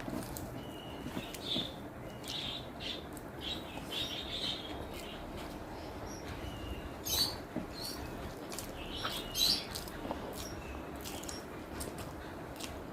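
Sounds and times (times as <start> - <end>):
person chewing food: 7.6 - 12.9.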